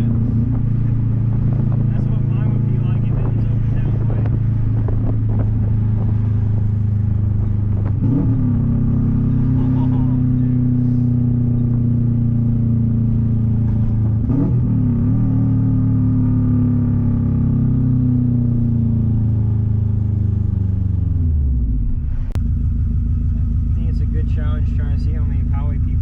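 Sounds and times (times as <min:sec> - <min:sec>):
loud car engine exhaust: 0:00.0 - 0:26.0.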